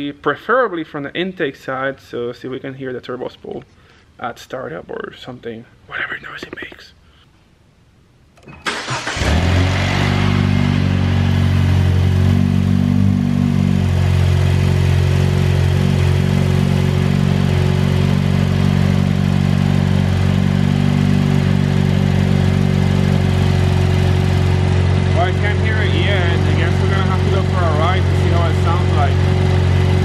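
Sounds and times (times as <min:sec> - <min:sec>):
car engine cranking and idling: 0:08.4 - 0:30.0.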